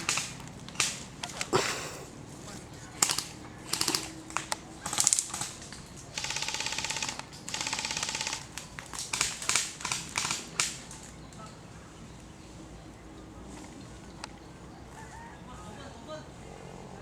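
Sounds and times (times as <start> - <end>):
airsoft gun full-auto bursts: 0.0 - 1.9, 3.0 - 11.0.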